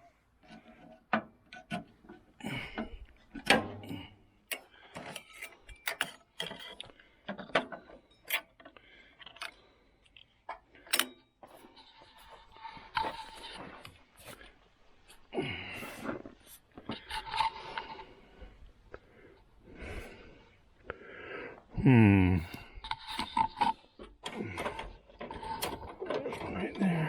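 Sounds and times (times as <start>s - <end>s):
hand tools clinking on metal: 5.0s - 6.9s.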